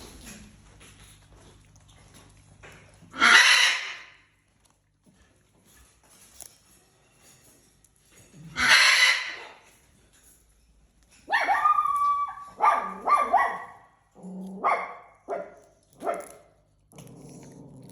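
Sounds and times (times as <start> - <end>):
parrot screeching: 3.1 - 4.2, 8.6 - 9.7, 11.3 - 13.7
parrot sharp bark-like calls: 3.1 - 4.2, 8.6 - 9.7, 11.3 - 13.9.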